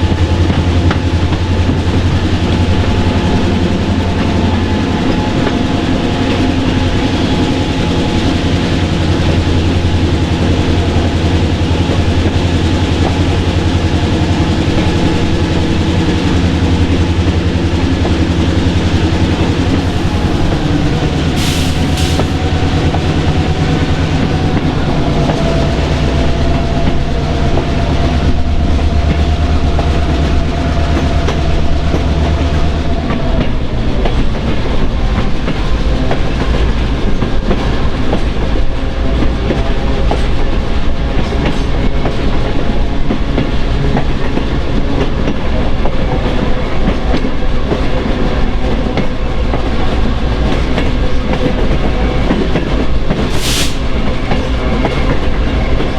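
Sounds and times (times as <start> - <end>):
diesel engine drone: 0.0 - 32.8
rolling cars rumbling and rattling: 0.0 - 55.9.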